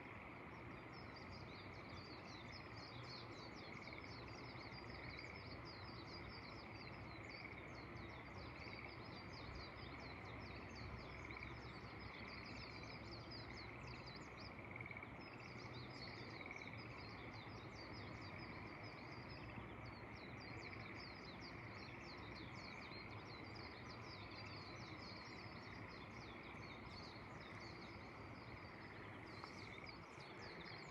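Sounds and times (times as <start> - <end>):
background hiss: 0.0 - 30.9
frogs chirping: 0.0 - 30.9
birds chirping: 10.0 - 30.9.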